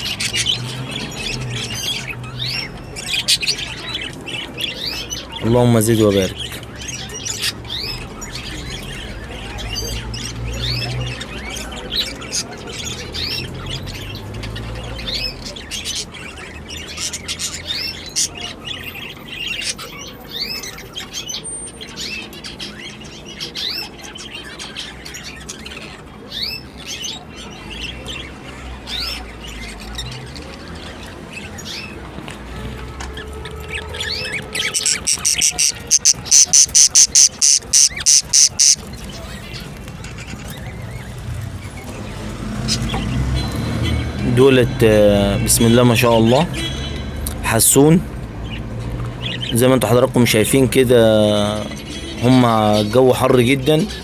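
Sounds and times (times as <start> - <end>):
finches chirping and twittering: 0.0 - 54.0.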